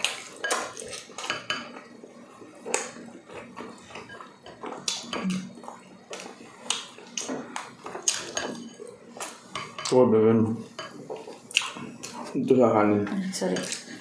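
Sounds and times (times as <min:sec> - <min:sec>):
wet chewing and lip-smacking: 0:11.3 - 0:12.2
low hum of a voice: 0:12.3 - 0:14.0.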